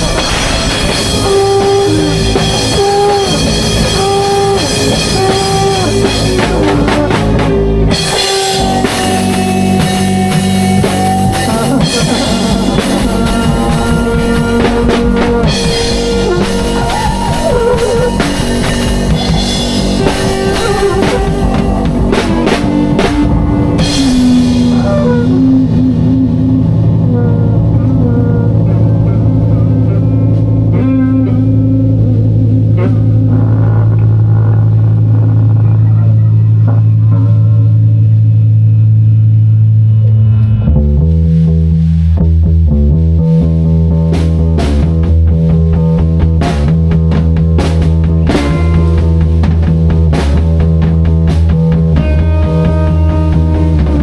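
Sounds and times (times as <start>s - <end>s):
lead line of held notes: 0.0s - 40.8s
drum kit: 0.0s - 54.0s
live band jamming: 0.0s - 54.0s.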